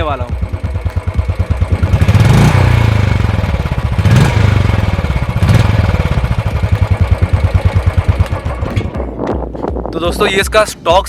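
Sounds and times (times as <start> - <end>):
motorcycle engine revving and idling: 0.0 - 9.8.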